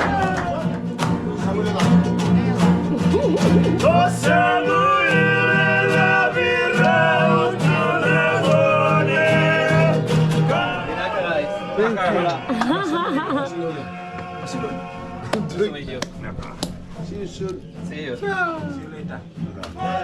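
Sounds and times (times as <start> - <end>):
guitar: 0.0 - 20.0
steady beat: 1.2 - 4.6.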